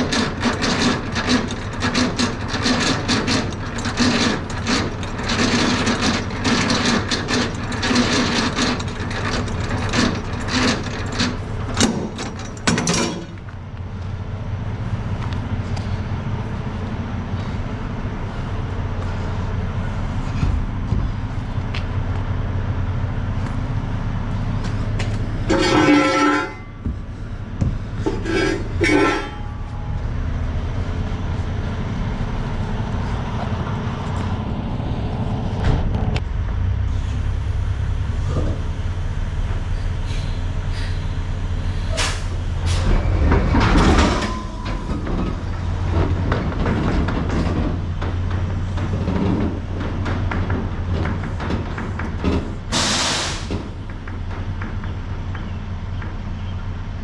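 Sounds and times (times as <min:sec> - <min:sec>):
clunks and rattles: 0:00.0 - 0:56.9
truck engine running: 0:00.0 - 0:57.0
burst of hiss: 0:52.7 - 0:53.5.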